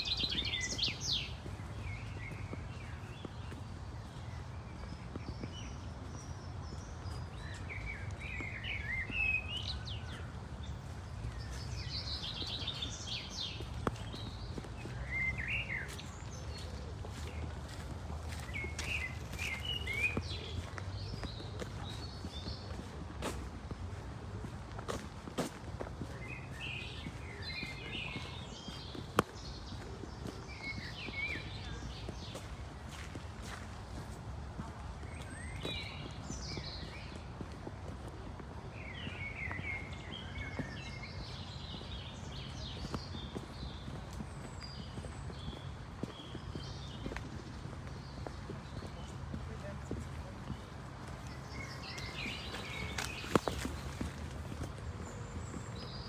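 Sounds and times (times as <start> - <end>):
city background rumble: 0.0 - 56.0
small birds chirping: 0.0 - 56.0.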